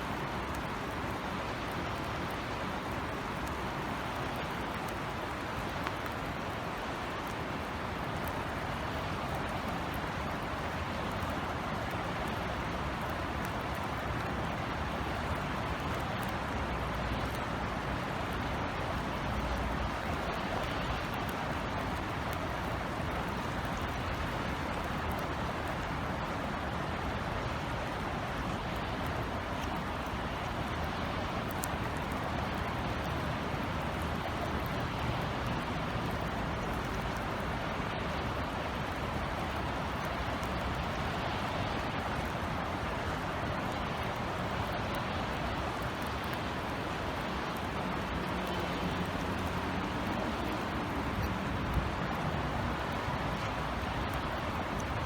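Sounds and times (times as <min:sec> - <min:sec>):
rain falling: 0:00.0 - 0:55.0
distant city traffic: 0:45.4 - 0:55.0.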